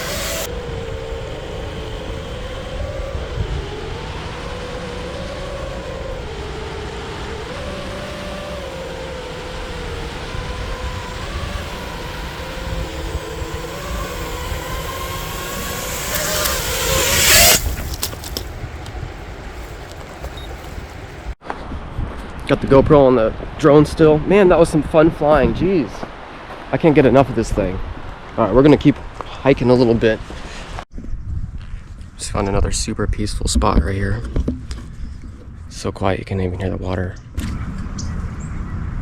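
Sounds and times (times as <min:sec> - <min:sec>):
drone propellers whining: 0:00.0 - 0:21.4
loud rush of noise: 0:00.0 - 0:21.4
low wind rumble: 0:00.0 - 0:30.0, 0:30.9 - 0:39.0.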